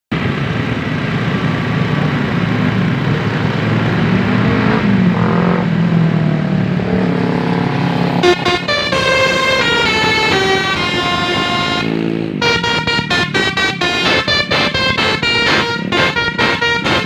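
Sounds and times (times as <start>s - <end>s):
bus engine running: 0.1s - 17.0s
road noise: 0.1s - 17.0s
multi-tone bus horn: 8.1s - 17.0s.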